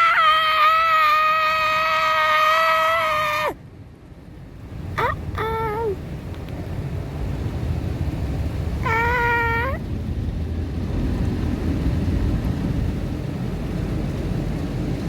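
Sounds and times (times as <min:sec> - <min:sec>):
drawn-out whining cry: 0:00.0 - 0:03.6, 0:04.9 - 0:06.0, 0:08.8 - 0:09.9
car wash water rushing: 0:06.6 - 0:15.0.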